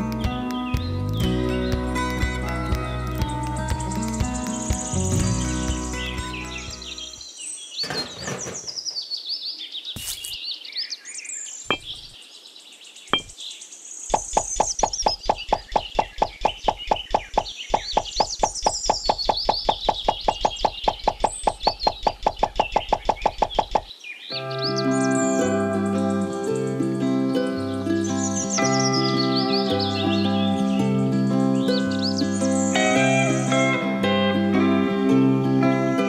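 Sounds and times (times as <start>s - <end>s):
birds chirping: 0.0s - 34.3s
rapid knocking: 14.1s - 23.9s.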